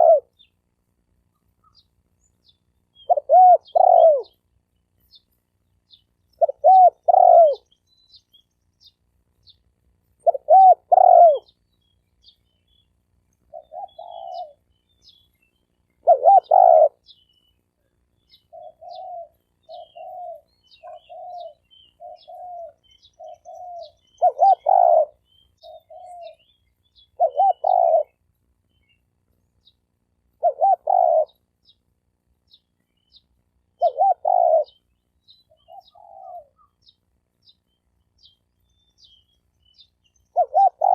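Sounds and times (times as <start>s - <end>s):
dove crowing coos: 0.0s - 0.4s, 3.0s - 4.4s, 6.4s - 7.8s, 10.2s - 11.6s, 13.5s - 14.7s, 16.0s - 17.1s, 18.3s - 26.5s, 27.2s - 28.2s, 30.4s - 31.4s, 33.8s - 34.8s, 35.5s - 36.8s, 40.3s - 40.9s
faint high chirping ticks: 0.0s - 40.9s.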